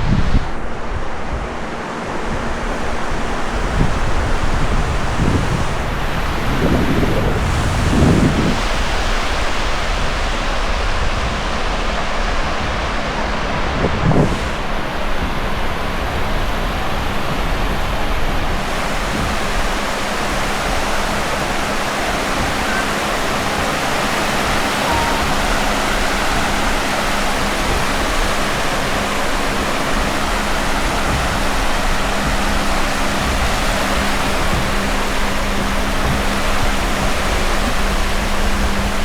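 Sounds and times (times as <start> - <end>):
sea surf washing on beach: 0.0 - 39.0
wind buffeting microphone: 0.0 - 39.0.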